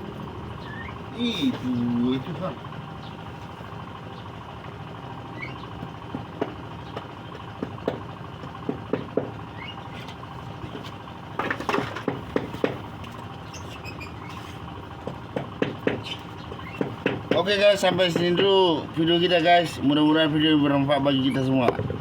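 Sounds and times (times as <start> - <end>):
faint bird chirps: 0.5 - 1.9.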